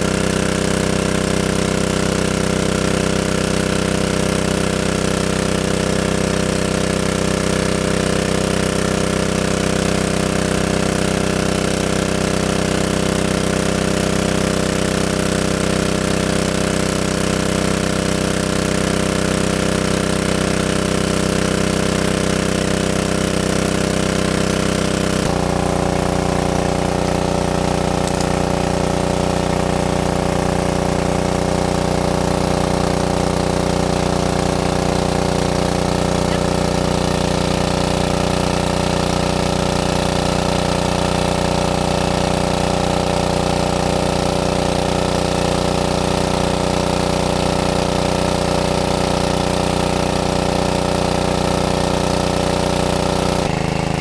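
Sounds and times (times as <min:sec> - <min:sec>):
small engine running: 0:00.0 - 0:54.0.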